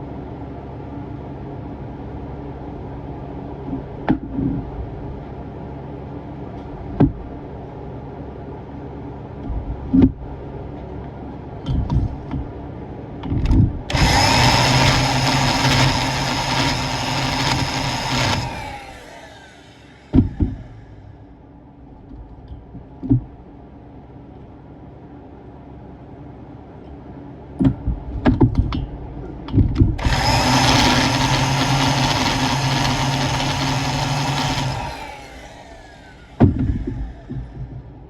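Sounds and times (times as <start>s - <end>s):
low machine hum: 0.0s - 38.0s
sharp clicks and knocks: 13.2s - 18.9s, 27.6s - 34.8s
power tool running: 13.9s - 21.2s, 30.0s - 37.8s.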